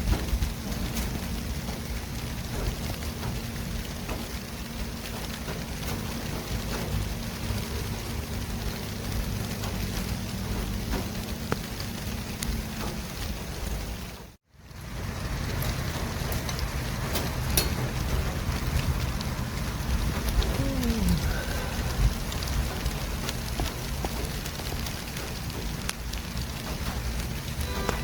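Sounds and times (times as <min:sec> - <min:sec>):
low engine hum: 0:00.0 - 0:28.0
passing vehicles: 0:14.6 - 0:24.7.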